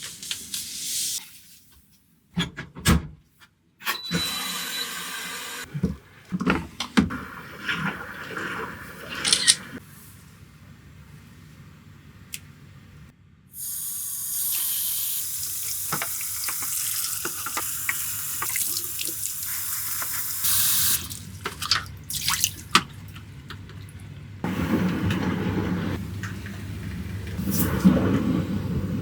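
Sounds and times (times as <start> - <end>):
water drips and splashes: 15.6 - 24.3.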